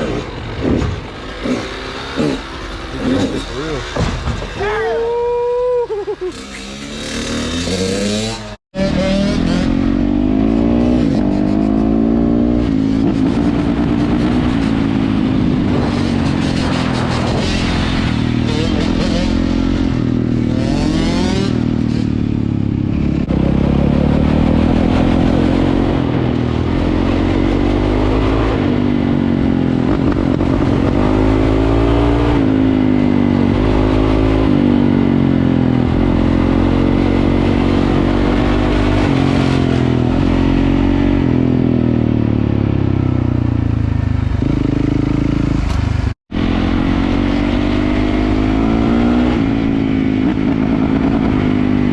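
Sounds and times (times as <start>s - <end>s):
dirt bike engine revving: 0.0s - 4.1s, 6.0s - 22.3s.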